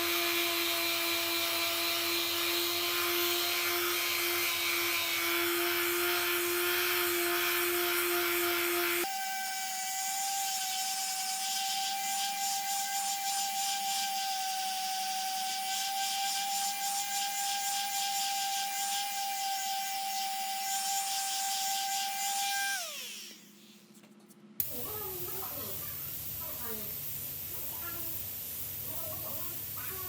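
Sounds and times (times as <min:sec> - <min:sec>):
power tool grinding metal: 0:00.0 - 0:23.8
motor spinning down: 0:18.2 - 0:23.8.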